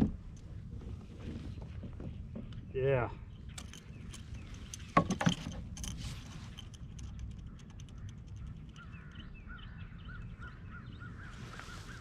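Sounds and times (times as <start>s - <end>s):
water: 0.0s - 8.8s
wind: 0.0s - 12.0s
faint clicks: 6.6s - 9.2s.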